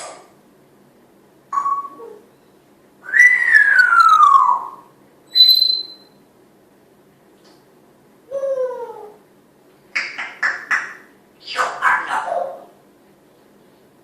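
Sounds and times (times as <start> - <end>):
parrot whistling: 1.6 - 2.2, 3.0 - 6.1.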